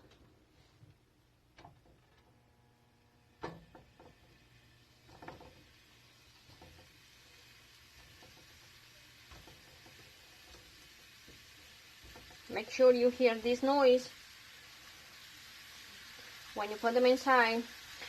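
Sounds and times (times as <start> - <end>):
meatballs sizzling in a pan: 3.5 - 18.0
meatballs knocking on a pan: 6.4 - 13.2.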